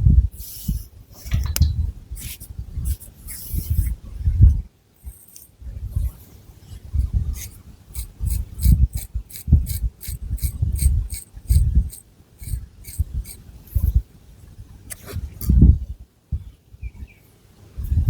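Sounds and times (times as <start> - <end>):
fingernails scratching scalp: 7.4 - 13.4.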